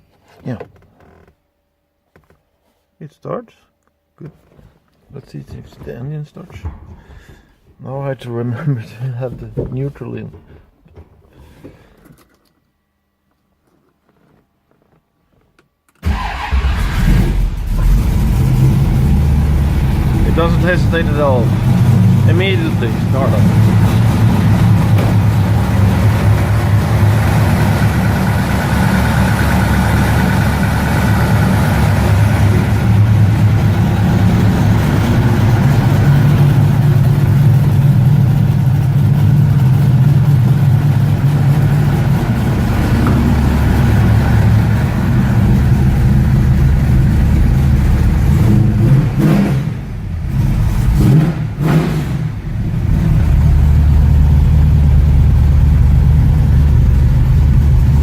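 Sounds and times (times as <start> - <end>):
car engine running: 17.1 - 51.2, 52.4 - 58.0.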